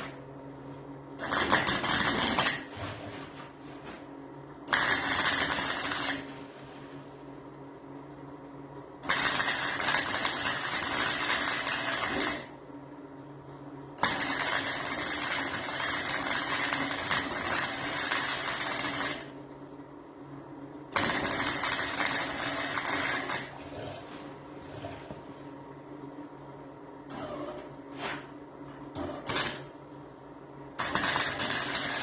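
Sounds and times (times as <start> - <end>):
arc welding crackling: 1.2 - 2.8, 4.7 - 6.9, 9.0 - 12.6, 14.0 - 19.4, 20.9 - 23.6, 28.9 - 29.7, 30.7 - 32.0.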